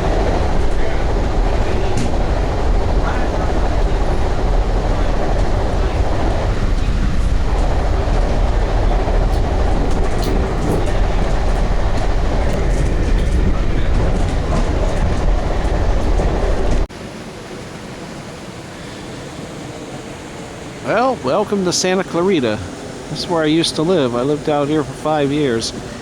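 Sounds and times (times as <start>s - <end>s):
train wheels rumbling on rails: 0.0s - 26.0s
steady background hiss: 16.9s - 26.0s.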